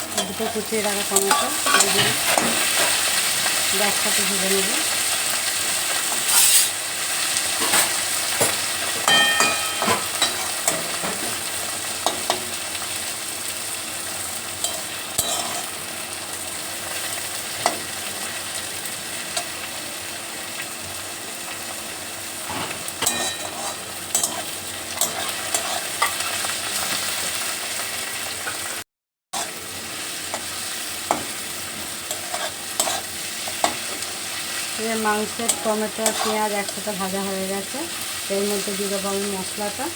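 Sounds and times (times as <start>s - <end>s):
vegetables sizzling in oil: 0.0s - 28.8s, 29.4s - 39.9s
spatula scraping a pan: 6.0s - 6.8s, 14.6s - 15.7s, 22.5s - 27.2s, 32.0s - 34.1s, 35.5s - 36.8s.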